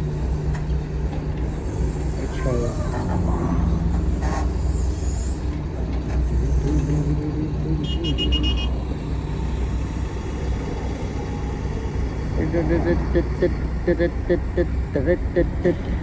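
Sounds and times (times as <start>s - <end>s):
heavy diesel machinery running: 0.0s - 16.0s
high electronic warning beeps: 12.4s - 16.0s.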